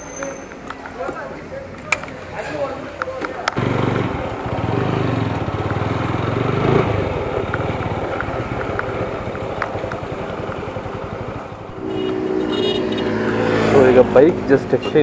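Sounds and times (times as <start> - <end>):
motorcycle engine running: 3.1 - 15.0.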